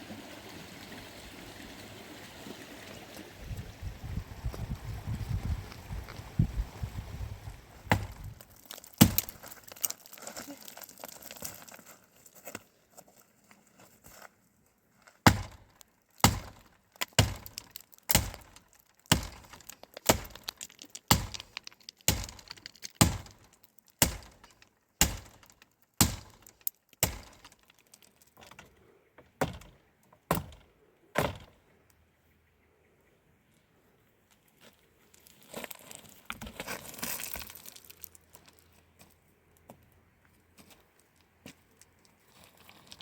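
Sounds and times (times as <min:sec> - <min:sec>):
tool striking wood: 0:07.9 - 0:08.2, 0:15.3 - 0:15.6, 0:16.2 - 0:20.4, 0:24.0 - 0:24.4, 0:25.0 - 0:27.5, 0:29.4 - 0:30.6, 0:31.2 - 0:31.5.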